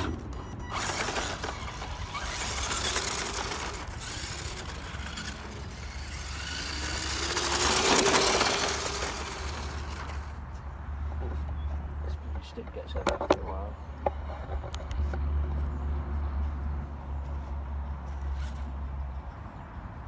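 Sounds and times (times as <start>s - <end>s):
electric motor whine: 0.7s - 10.3s
tyres crunching on gravel: 0.8s - 10.7s.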